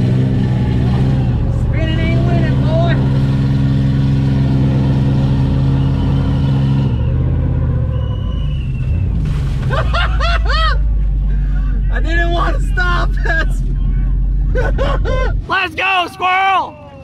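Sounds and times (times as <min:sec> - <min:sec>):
truck engine at high revs: 0:00.0 - 0:15.7
people whooping and shouting: 0:00.3 - 0:02.6, 0:15.7 - 0:17.0.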